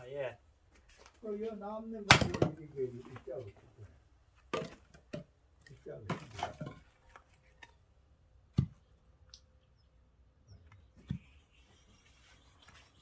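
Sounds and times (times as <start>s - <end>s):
firewood thuds: 2.1s - 2.7s, 4.5s - 5.3s.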